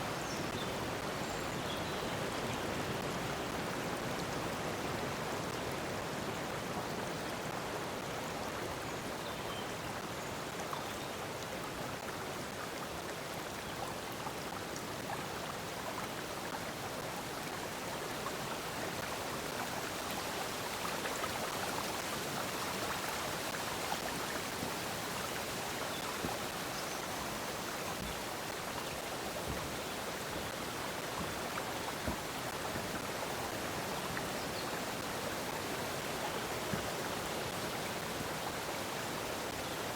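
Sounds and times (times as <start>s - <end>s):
stream water rushing: 9.8s - 39.9s.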